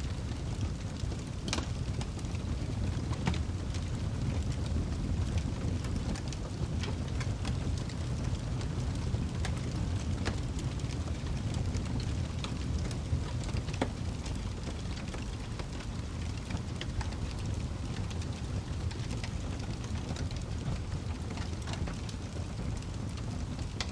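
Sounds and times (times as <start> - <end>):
fire rumbling: 0.0 - 23.9
fire popping and crackling: 0.1 - 23.9.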